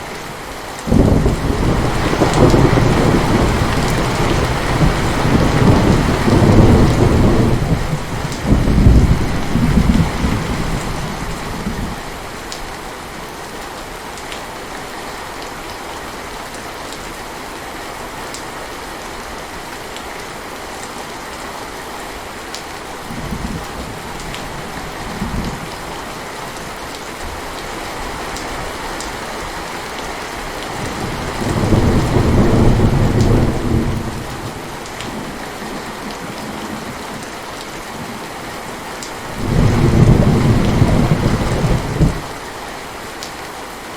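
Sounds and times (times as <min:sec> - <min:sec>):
heavy rain: 0:00.0 - 0:43.9
rolling thunder: 0:00.9 - 0:12.0, 0:30.8 - 0:35.4, 0:39.3 - 0:42.4.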